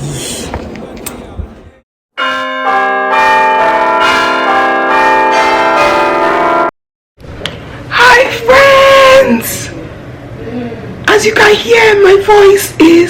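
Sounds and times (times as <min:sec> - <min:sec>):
bell-like chiming tones: 0:02.2 - 0:06.7.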